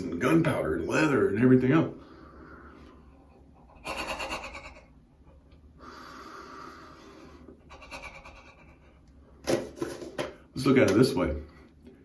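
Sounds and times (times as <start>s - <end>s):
man breathing noisily: 5.8s - 9.0s.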